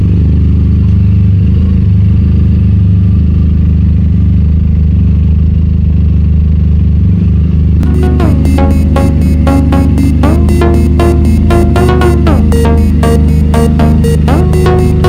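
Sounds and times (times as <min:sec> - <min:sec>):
electronic music beat: 0:07.8 - 0:15.0.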